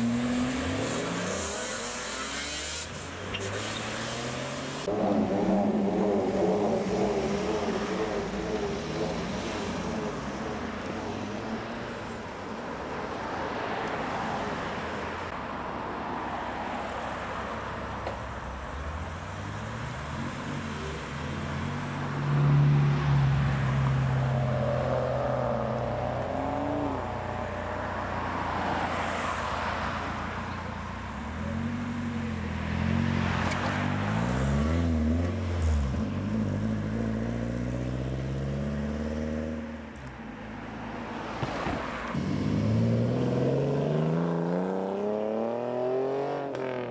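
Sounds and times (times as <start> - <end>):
cars driving past: 0.0 - 46.9
car accelerating: 41.2 - 46.9
car engine revving: 42.1 - 46.9.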